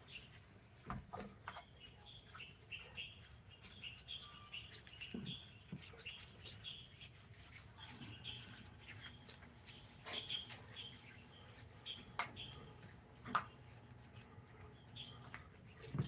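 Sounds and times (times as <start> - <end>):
soft rubbing: 0.0 - 16.0.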